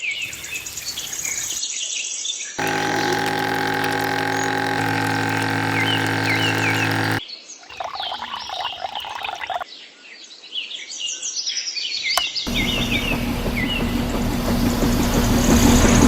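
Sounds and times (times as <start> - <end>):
motor hum: 2.6 - 9.6, 12.5 - 16.0.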